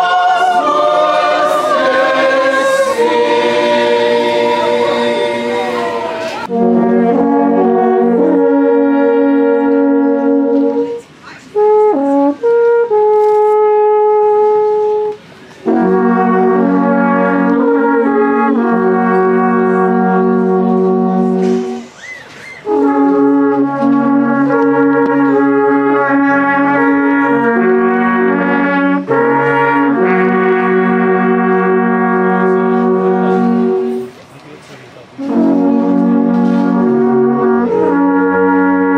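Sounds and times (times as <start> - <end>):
alphorns playing chords: 0.0 - 13.0, 22.8 - 34.1.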